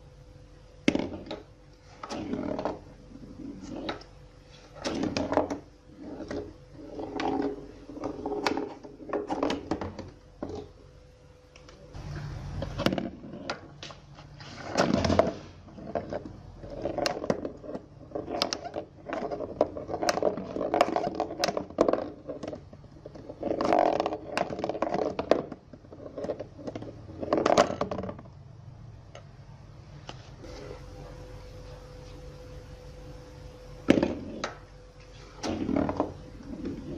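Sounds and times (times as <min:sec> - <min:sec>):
ball knocking cardboard flippers: 0:00.8 - 0:04.1, 0:04.7 - 0:10.8, 0:12.0 - 0:28.3, 0:33.8 - 0:34.6
ball rolling on cardboard: 0:00.8 - 0:28.5, 0:33.8 - 0:36.9.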